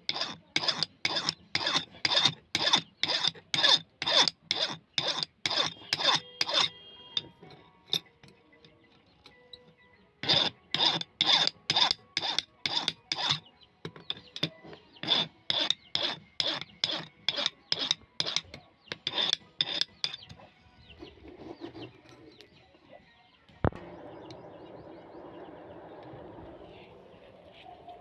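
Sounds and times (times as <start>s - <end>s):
chisel scraping on sharpening stone: 0.0s - 8.4s, 10.2s - 20.4s.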